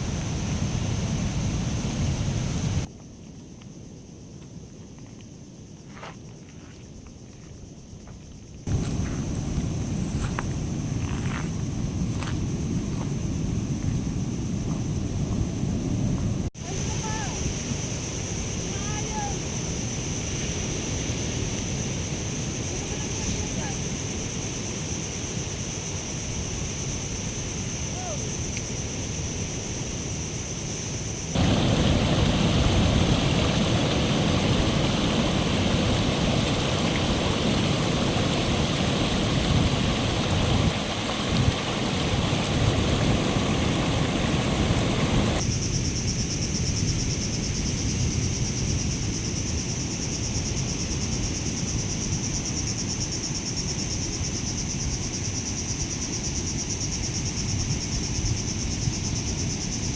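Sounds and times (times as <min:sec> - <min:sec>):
insect chirring: 0:00.0 - 0:15.7, 0:16.6 - 0:59.9
loud even rushing noise: 0:31.4 - 0:45.4.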